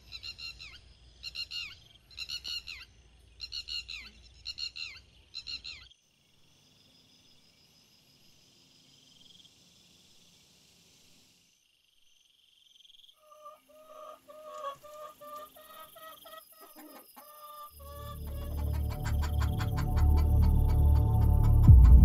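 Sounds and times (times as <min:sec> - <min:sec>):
night insects chirring: 0:00.0 - 0:22.0
chickens clucking: 0:13.2 - 0:21.7.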